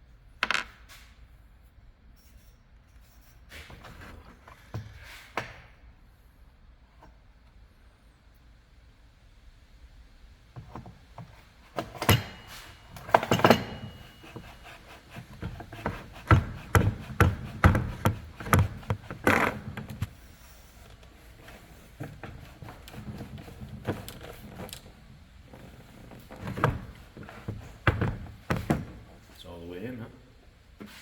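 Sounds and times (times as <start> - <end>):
tools knocking and clicking: 10.6 - 20.2.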